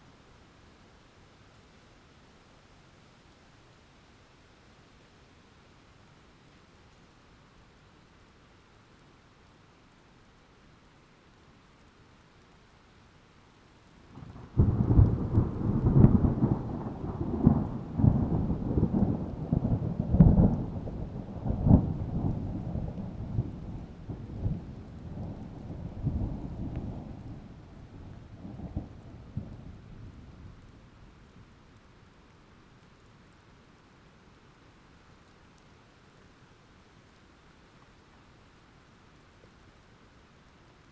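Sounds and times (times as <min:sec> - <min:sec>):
faint rain hiss: 0:00.0 - 0:40.9
thunder clap and rumbles: 0:14.4 - 0:30.5.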